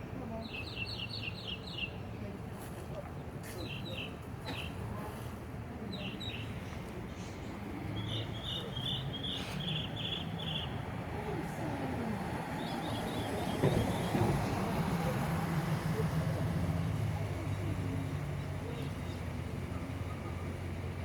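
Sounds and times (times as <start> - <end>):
outdoor background noise: 0.0 - 21.0
bird chirping: 8.0 - 10.8.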